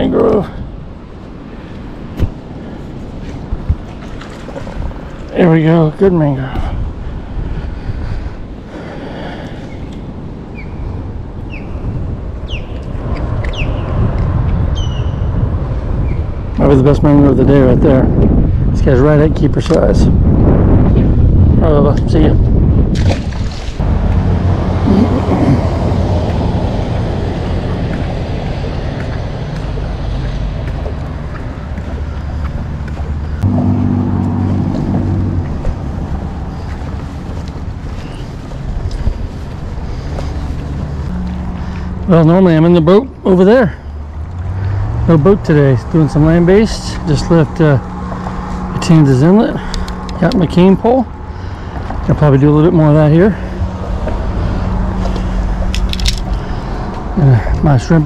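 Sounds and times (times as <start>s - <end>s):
birds chirping: 8.4s - 14.0s, 14.6s - 16.6s, 23.8s - 58.0s
engine rumbling: 11.4s - 58.0s
loud low rumble: 33.2s - 36.8s.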